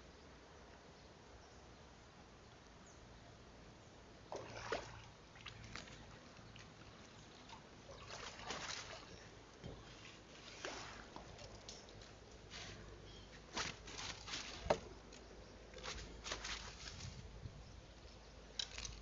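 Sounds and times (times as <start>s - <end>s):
water splashing: 4.3s - 11.3s
water sloshing: 4.3s - 11.7s.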